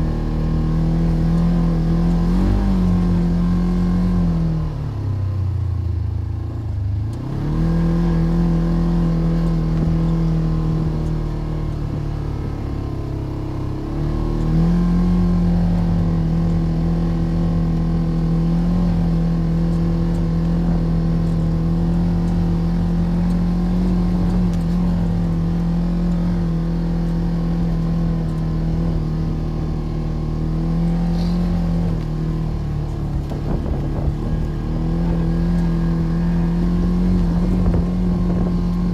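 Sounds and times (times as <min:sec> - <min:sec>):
motor running steadily: 0:09.2 - 0:38.9.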